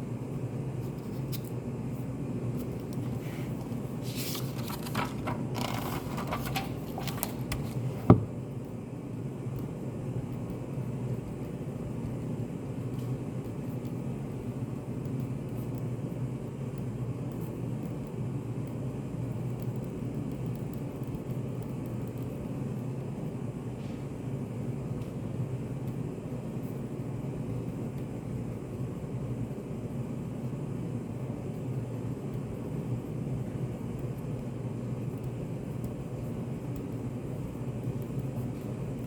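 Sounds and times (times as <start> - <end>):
small clicks and rustles: 2.6 - 8.0, 33.9 - 39.0.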